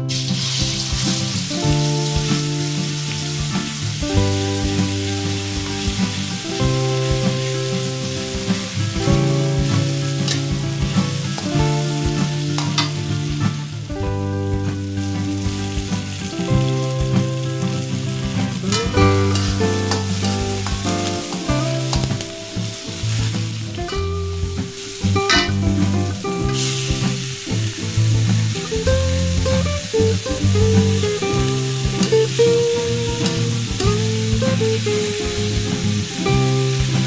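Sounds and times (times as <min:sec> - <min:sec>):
background music: 0:00.0 - 0:37.0
paste sizzling in a wok: 0:00.0 - 0:37.0.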